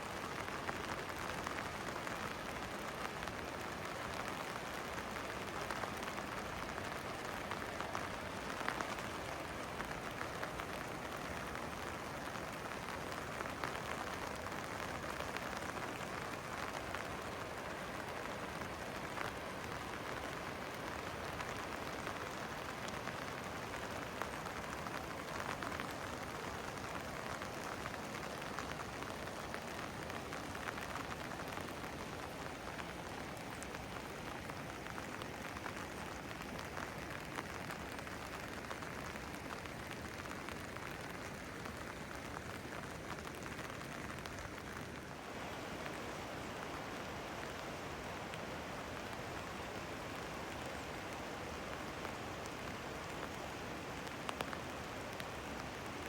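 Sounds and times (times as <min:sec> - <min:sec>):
rain pattering on hard surfaces: 0:00.0 - 0:56.0.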